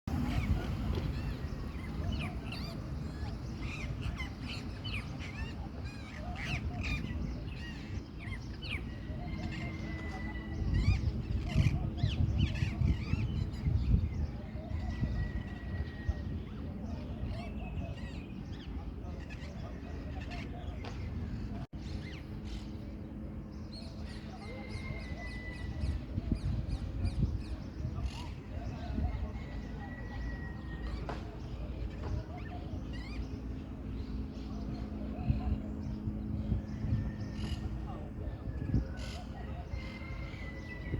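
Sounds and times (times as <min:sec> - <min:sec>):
parakeets screeching: 0:00.2 - 0:13.2.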